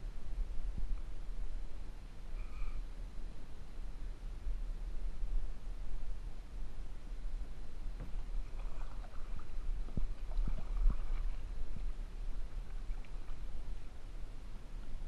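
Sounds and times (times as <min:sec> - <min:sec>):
low rumble on microphone: 0:00.0 - 0:15.0
kayak paddle strokes: 0:07.9 - 0:13.9.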